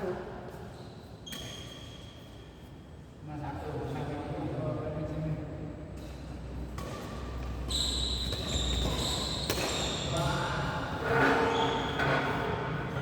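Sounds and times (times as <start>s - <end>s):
shoe squeaks on court floor: 0.7s - 2.5s, 6.8s - 10.4s, 11.1s - 12.3s.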